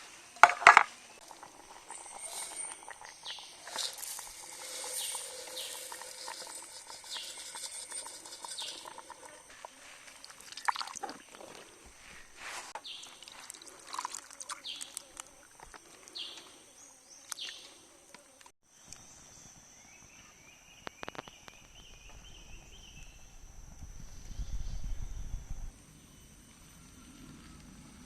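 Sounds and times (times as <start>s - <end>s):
high-pitched insect drone: 0.4s - 11.0s
birds chirping and calling: 1.0s - 9.5s, 14.6s - 15.0s.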